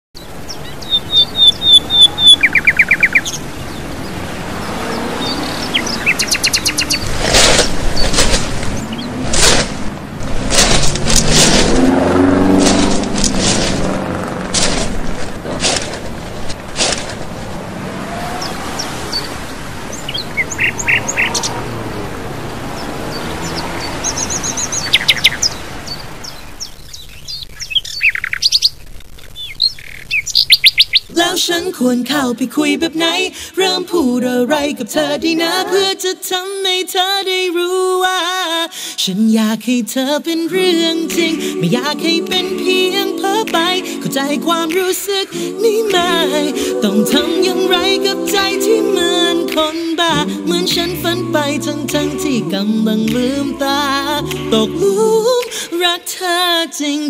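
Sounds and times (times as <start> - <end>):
small birds chirping: 0.2 - 9.2, 18.3 - 31.1
songbirds whistling: 0.2 - 9.2, 18.2 - 21.6, 22.7 - 31.1
background hiss: 40.3 - 56.7.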